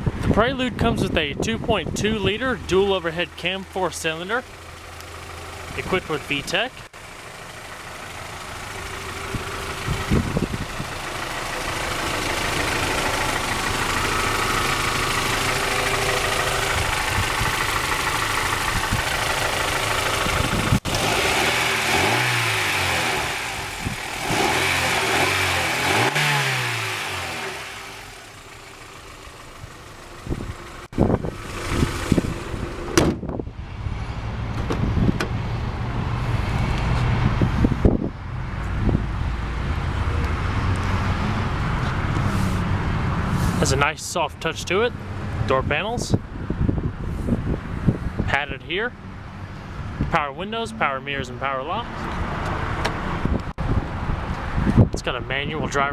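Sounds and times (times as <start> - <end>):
car engine running and revving: 2.6 - 43.8
sharp knocks and thumps: 32.9 - 33.3.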